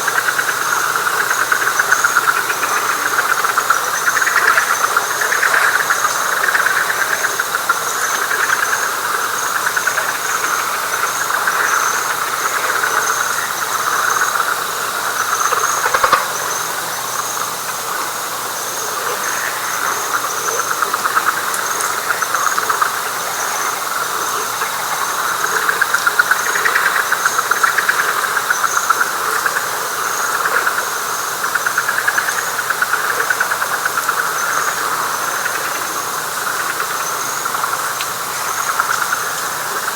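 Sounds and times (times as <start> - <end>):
frogs calling: 0.0 - 39.9.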